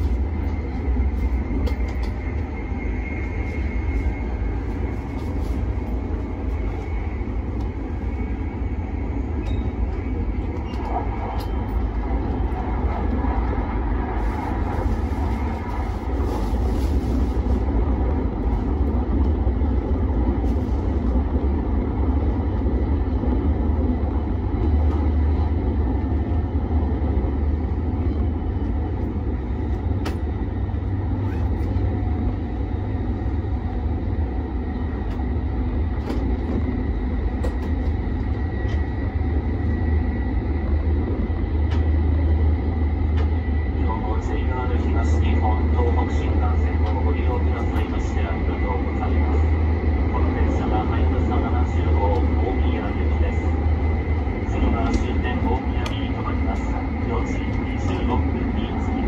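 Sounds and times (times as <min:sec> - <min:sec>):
train rumbling and rushing: 0:00.0 - 0:59.0.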